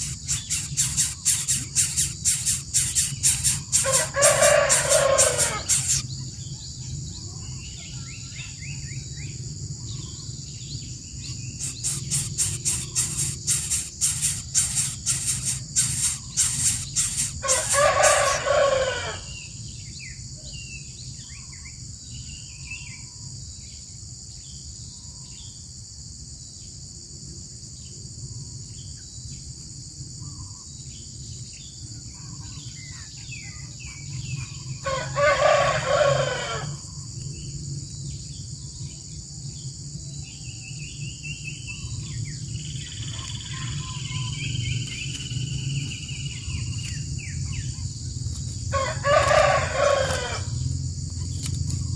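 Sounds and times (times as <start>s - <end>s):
high insect buzz: 0.0s - 6.2s, 10.0s - 19.4s, 41.8s - 51.9s
faint bird chirps: 0.0s - 18.6s
rooster crowing: 2.6s - 6.0s, 14.3s - 19.3s, 34.8s - 36.8s, 48.7s - 50.6s.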